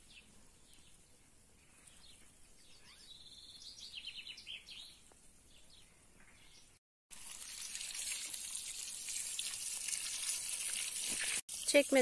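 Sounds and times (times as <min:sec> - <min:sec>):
songbirds chirping: 0:00.0 - 0:06.8
bird trill: 0:02.6 - 0:05.0.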